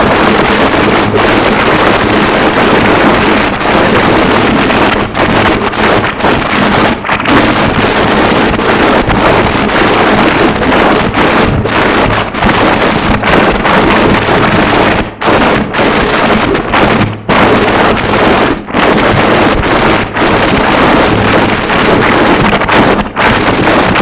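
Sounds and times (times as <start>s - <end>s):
harsh noise wall: 0.0s - 24.0s.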